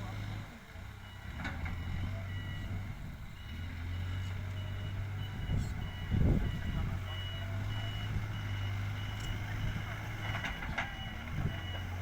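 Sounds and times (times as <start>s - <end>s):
diesel engine running: 0.0s - 12.0s
reversing alarm beeping: 1.0s - 12.0s.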